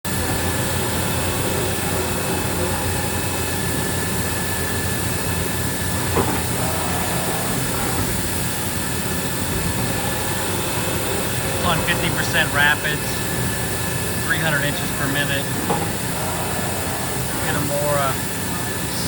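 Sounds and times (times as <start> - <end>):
machine hum and hiss: 0.1 - 19.0.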